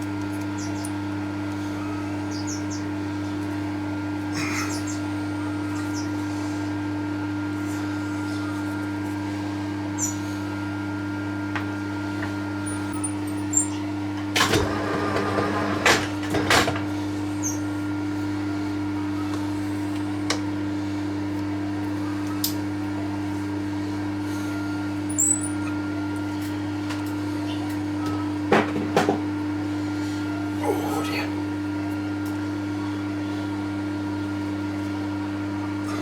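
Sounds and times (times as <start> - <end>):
milling machine running: 8.9 - 28.6.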